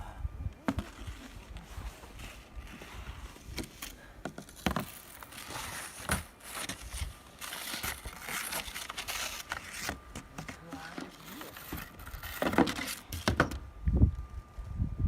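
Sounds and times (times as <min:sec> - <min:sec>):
crunching and scraping in snow: 0:00.7 - 0:13.2.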